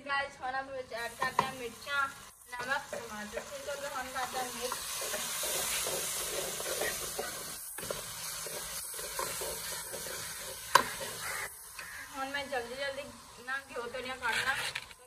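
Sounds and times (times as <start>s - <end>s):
food sizzling in a pan: 0.4s - 15.0s
metal spoon scraping a pan: 3.8s - 12.1s, 14.1s - 15.0s.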